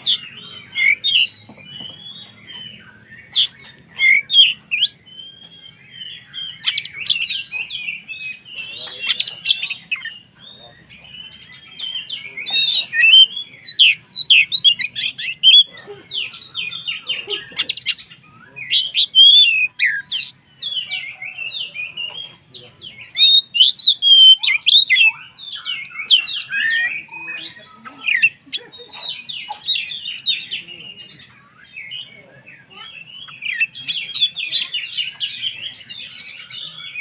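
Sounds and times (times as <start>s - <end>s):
bird singing varied song: 0.0s - 37.0s.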